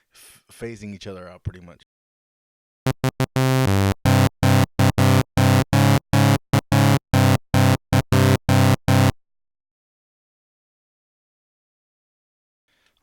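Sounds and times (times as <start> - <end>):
buzzy sawtooth synth lead: 2.9 - 9.2.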